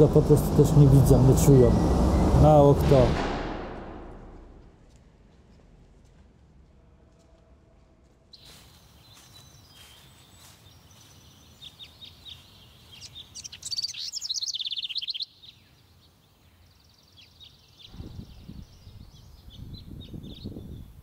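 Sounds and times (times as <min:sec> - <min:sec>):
songbirds chirping: 0:06.6 - 0:21.0
loud rapid bird trill: 0:11.4 - 0:16.1.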